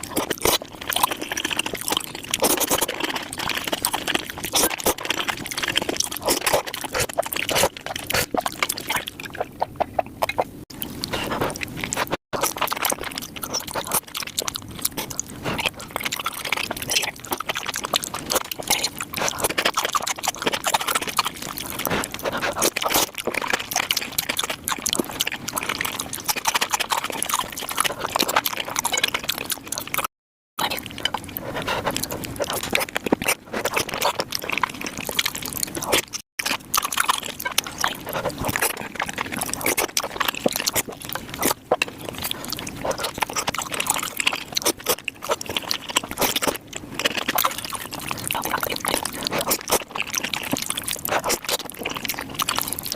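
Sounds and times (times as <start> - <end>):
wet chewing and slurping: 0.0 - 52.9.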